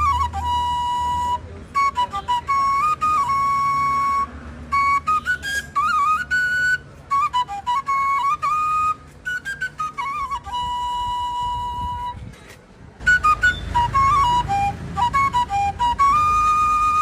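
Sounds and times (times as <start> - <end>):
solo flute melody: 0.0 - 17.0.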